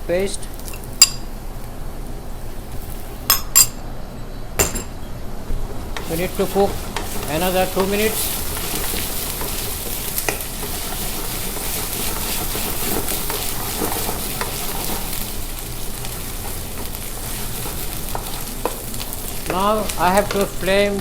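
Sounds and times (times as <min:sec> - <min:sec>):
paste sizzling in hot oil: 0:05.8 - 0:21.0
utensil clicking against pan: 0:05.9 - 0:15.3, 0:16.0 - 0:21.0.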